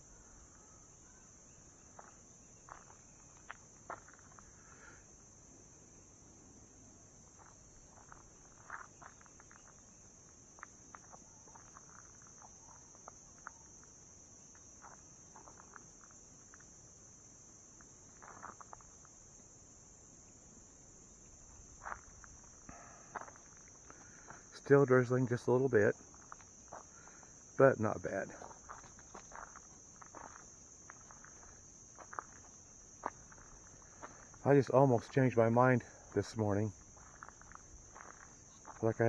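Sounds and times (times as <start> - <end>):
high-pitched insect drone: 21.8 - 39.0.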